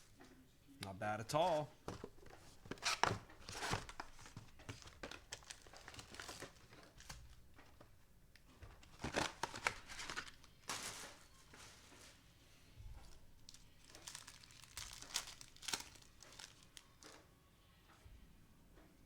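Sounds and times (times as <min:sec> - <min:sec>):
foil wrappers crinkling and tearing: 0:02.6 - 0:07.9, 0:08.7 - 0:12.2, 0:13.4 - 0:17.2.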